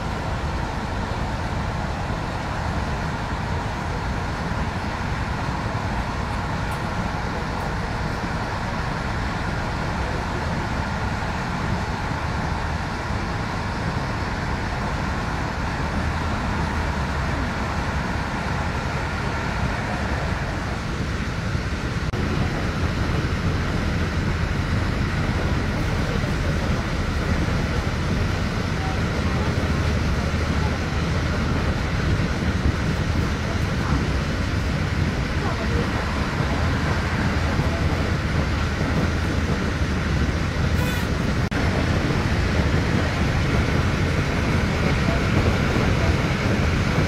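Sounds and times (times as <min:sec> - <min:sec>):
train wheels rumbling on track: 0:00.0 - 0:47.0.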